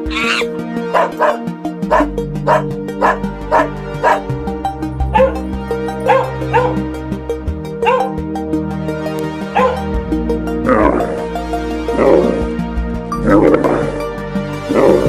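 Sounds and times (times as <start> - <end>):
background music: 0.0 - 15.0
dog barking in high yips: 0.1 - 4.2, 5.2 - 5.4, 6.1 - 6.8, 7.8 - 8.1, 9.6 - 9.8.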